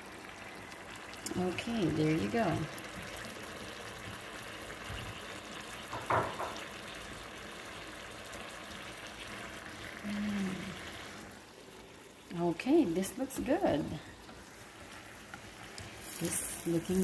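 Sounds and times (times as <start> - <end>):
food sizzling in a pan: 0.0 - 17.0
stirring in a pan: 10.7 - 17.0.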